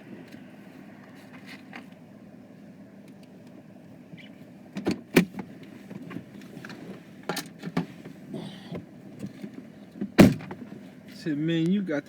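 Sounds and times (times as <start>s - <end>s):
clicks and knocks in a car: 4.8s - 10.8s.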